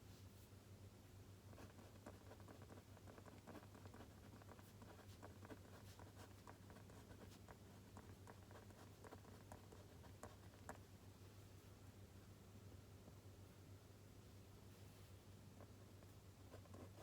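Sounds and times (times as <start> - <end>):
low steady hum: 0.0 - 17.0
pen scratching on paper: 1.6 - 10.8, 16.5 - 17.0.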